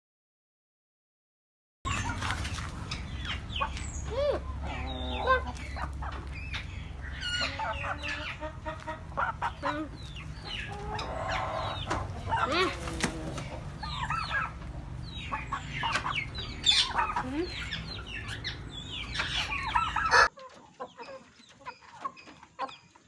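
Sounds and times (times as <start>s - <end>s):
low rumble: 1.9s - 20.0s
hens clucking and calling: 1.9s - 23.0s.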